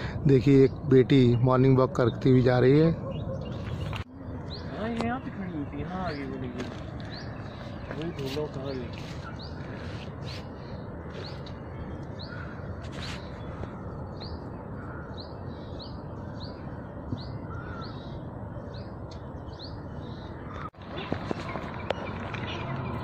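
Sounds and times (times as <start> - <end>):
steady background noise: 0.0 - 23.0
bird chirping high: 0.7 - 8.4.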